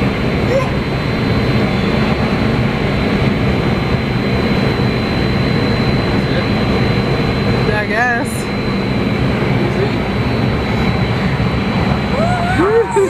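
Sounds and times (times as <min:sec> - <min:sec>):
loud rush of wind: 0:00.0 - 0:12.7
wind buffeting microphone: 0:00.0 - 0:12.8
thin high whine: 0:00.0 - 0:13.0.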